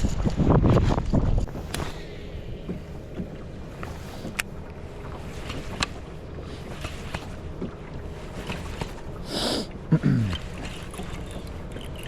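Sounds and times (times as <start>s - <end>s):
gusty wind buffeting microphone: 0.0s - 6.1s.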